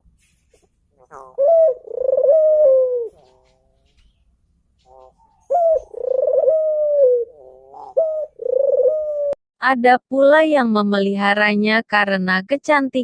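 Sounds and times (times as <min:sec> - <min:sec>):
dove cooing: 0:00.6 - 0:09.4.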